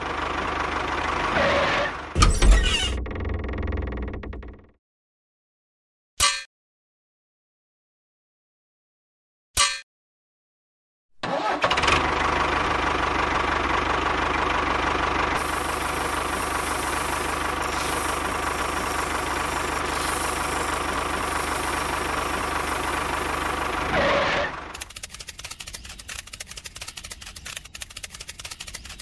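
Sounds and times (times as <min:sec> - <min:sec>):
small motor running: 0:15.4 - 0:29.0.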